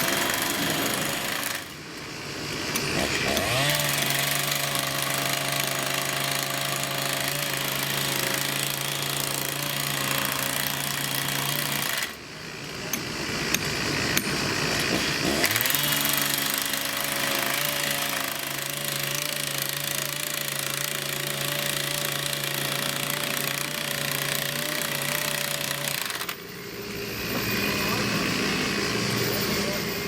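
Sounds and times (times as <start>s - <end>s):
hydraulic whine: 19.6s - 30.0s
excavator engine drone: 22.8s - 30.0s.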